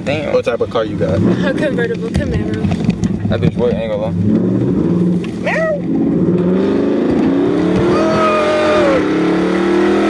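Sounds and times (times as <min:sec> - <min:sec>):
car engine revving: 0:03.9 - 0:10.0.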